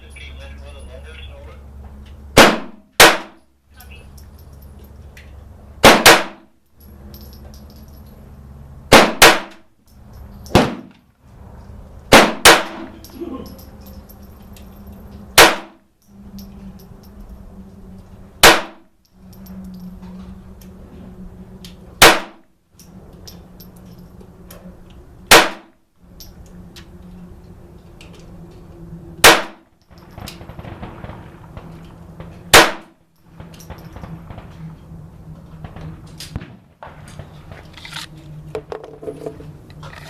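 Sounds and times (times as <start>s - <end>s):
low hum: 0.0s - 40.0s
pistol shots: 2.4s - 3.4s, 5.8s - 6.5s, 8.9s - 9.6s, 10.5s - 10.9s, 12.1s - 12.9s, 15.4s - 15.8s, 18.4s - 18.8s, 22.0s - 22.4s, 25.3s - 25.7s, 29.2s - 29.6s, 32.5s - 33.0s.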